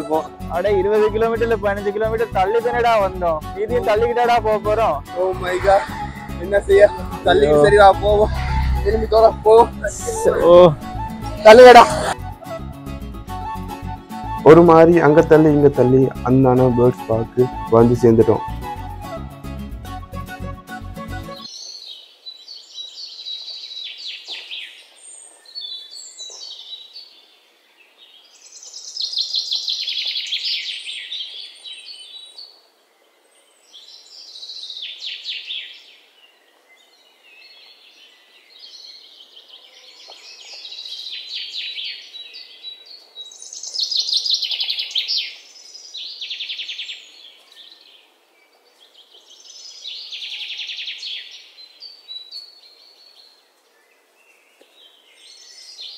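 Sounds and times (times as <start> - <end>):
small birds chirping: 0.0 - 12.1, 21.4 - 55.9.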